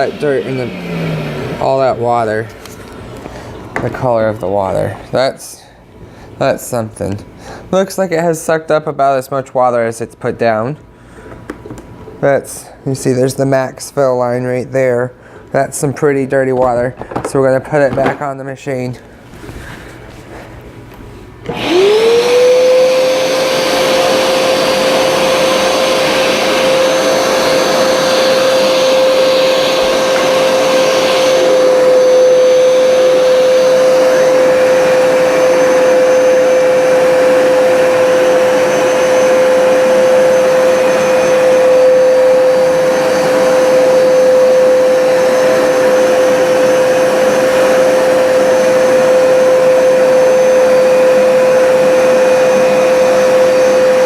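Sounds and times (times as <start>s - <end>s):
carpet cleaner suction motor: 0.0s - 3.0s, 21.4s - 54.0s.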